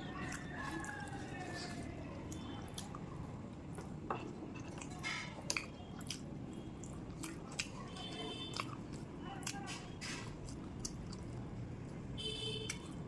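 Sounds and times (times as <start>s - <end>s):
chewing and wet mouth sounds: 0.0s - 13.0s.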